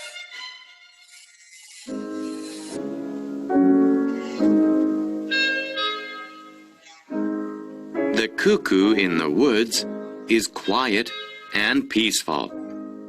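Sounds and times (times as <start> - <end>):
classical piano music: 2.0 - 10.6.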